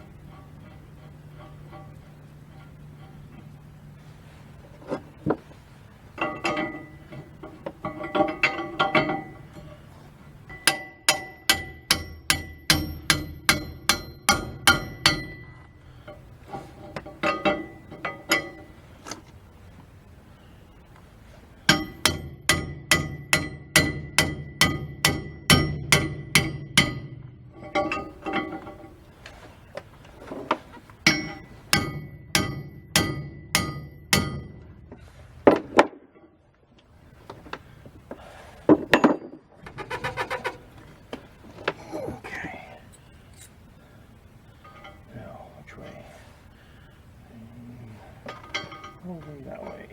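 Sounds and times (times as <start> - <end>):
hammer blows on metal: 10.5 - 18.8, 21.6 - 28.6, 31.0 - 35.2.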